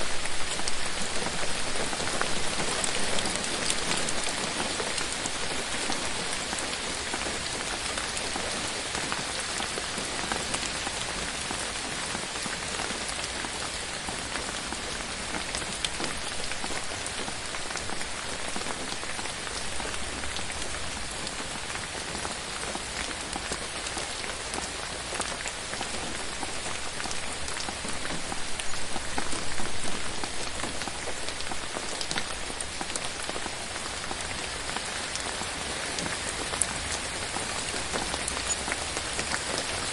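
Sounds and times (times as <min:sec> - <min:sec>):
rain on leaves: 0:00.0 - 0:39.9.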